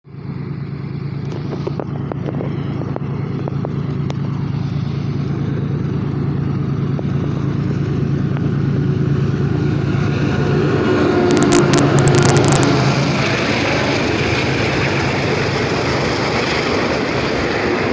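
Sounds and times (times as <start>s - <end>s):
train running drone: 0.0s - 17.9s
short crackle: 11.2s - 12.9s
sharp clicks: 11.3s - 12.7s.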